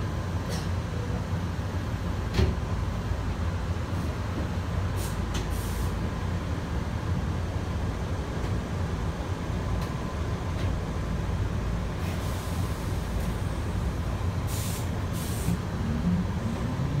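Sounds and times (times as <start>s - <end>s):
air hisses: 14.5s - 15.6s.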